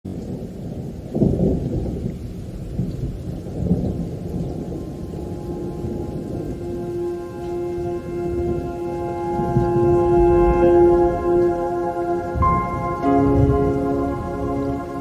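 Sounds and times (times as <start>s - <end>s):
rain: 0.0s - 15.0s
low rolling thunder: 0.1s - 15.0s.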